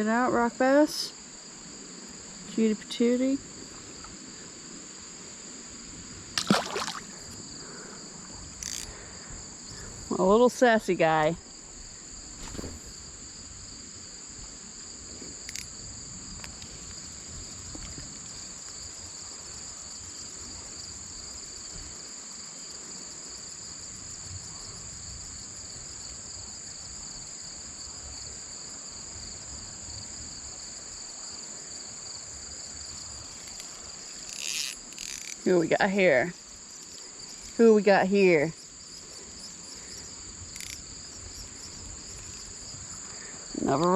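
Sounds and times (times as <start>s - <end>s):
insects trilling: 0.0s - 43.9s.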